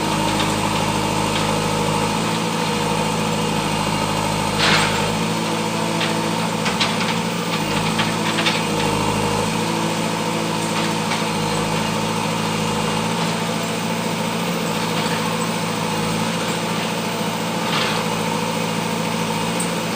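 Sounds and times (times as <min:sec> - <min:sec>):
diesel engine running: 0:00.0 - 0:19.9.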